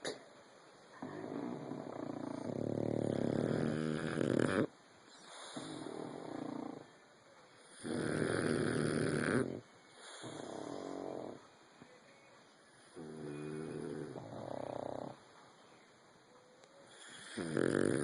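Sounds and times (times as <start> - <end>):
dog snoring: 0.9 - 7.0, 7.6 - 11.4, 12.7 - 15.2, 16.8 - 18.0.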